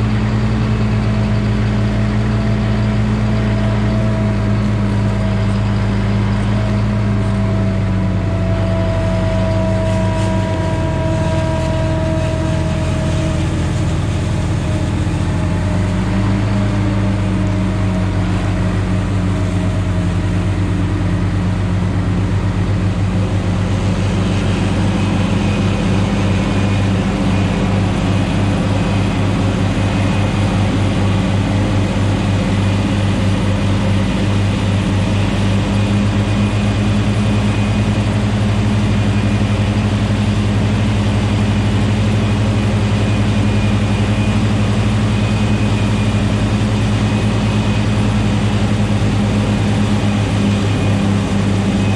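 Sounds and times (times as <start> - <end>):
tractor diesel engine running: 0.0 - 51.9
faint high whine: 3.5 - 51.9.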